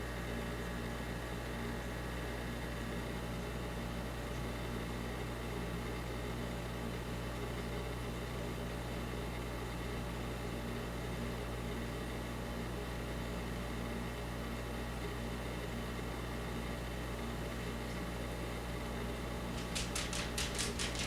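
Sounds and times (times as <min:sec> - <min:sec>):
low mechanical hum: 0:00.0 - 0:21.0
sharp high ticks: 0:19.6 - 0:21.0.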